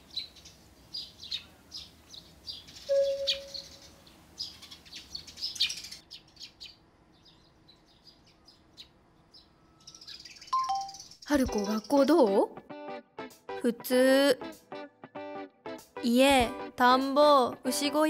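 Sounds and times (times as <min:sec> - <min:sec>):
small birds chirping: 0:00.0 - 0:12.5.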